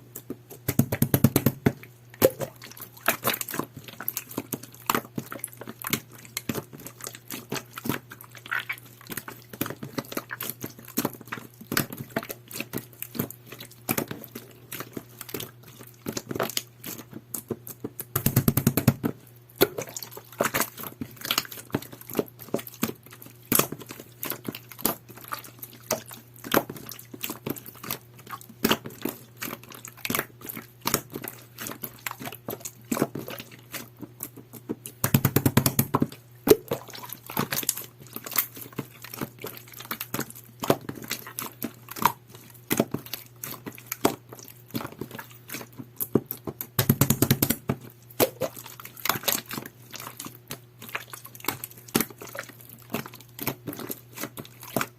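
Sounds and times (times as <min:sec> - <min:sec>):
slime squished by hand: 0:00.1 - 0:54.9.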